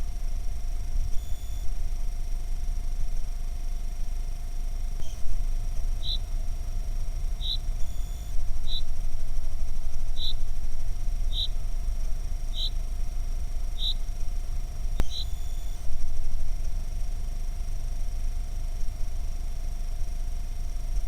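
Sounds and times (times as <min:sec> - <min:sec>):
sharp click: 0:15.0 - 0:15.3.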